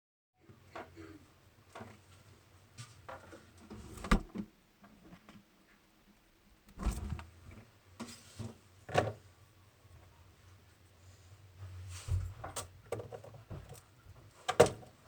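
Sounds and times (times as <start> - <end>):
faint handling noise: 6.6 - 8.6
knocks and thumps: 6.7 - 7.3.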